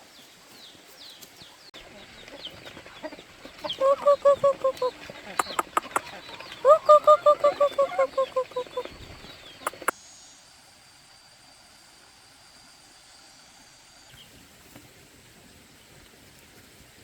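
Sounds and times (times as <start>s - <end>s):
poultry calling: 1.8s - 9.9s
sharp clicks: 5.4s - 6.1s, 9.7s - 9.9s.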